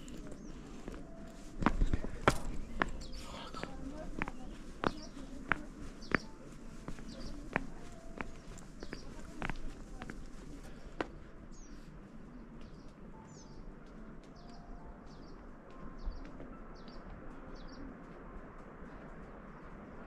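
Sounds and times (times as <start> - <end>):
background noise: 0.0 - 20.0
songbird chirping: 0.0 - 20.0.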